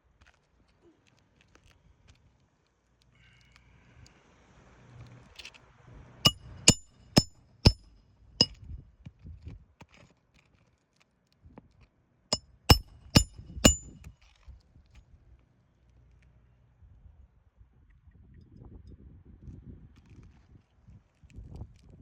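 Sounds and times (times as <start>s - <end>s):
hammer striking metal: 6.3s - 7.8s, 12.7s - 14.0s.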